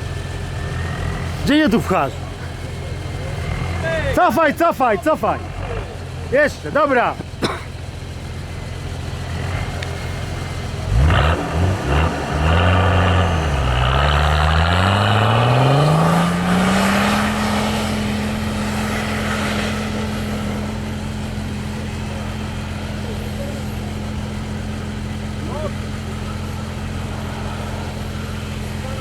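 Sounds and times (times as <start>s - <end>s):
car engine idling and revving: 0.0s - 29.0s
rushing hiss: 25.6s - 29.0s.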